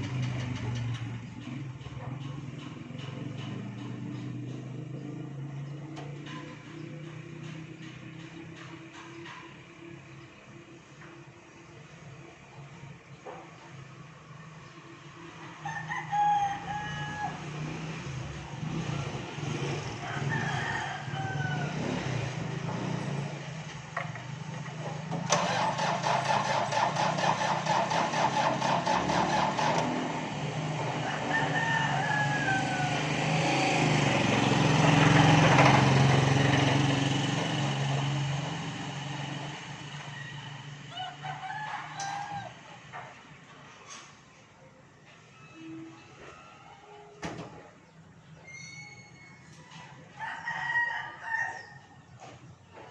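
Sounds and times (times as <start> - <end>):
roosters crowing: 15.3 - 43.2, 48.4 - 52.4.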